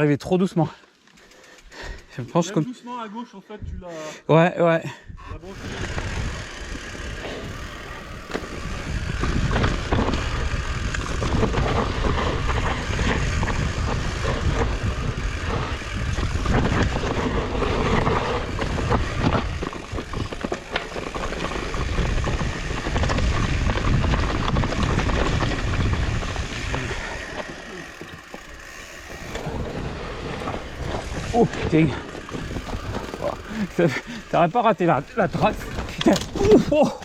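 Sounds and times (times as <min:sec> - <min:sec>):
mountain bike rattling on trail: 0:00.0 - 0:03.3, 0:05.4 - 0:37.0
wind on microphone: 0:05.1 - 0:27.3.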